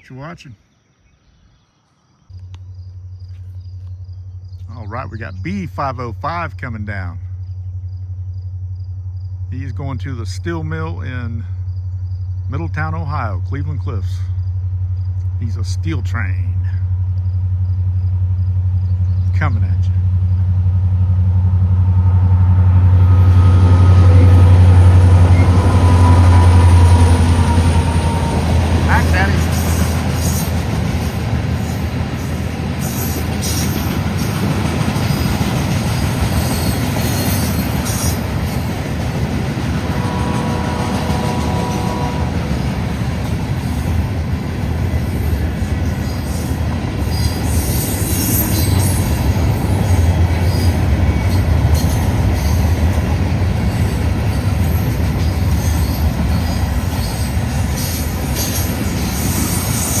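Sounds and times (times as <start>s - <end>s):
freight train wheels rumbling: 2.3s - 60.0s.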